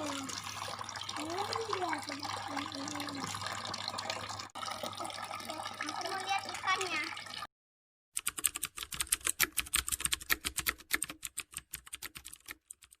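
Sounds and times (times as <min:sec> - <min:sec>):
rapid keyboard typing clicks: 0:08.2 - 0:13.0.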